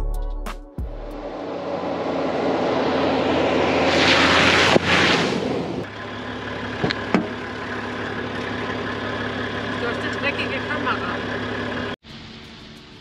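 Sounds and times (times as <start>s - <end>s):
diesel engine running: 0.8s - 13.0s
loud rushing noise: 0.9s - 5.9s.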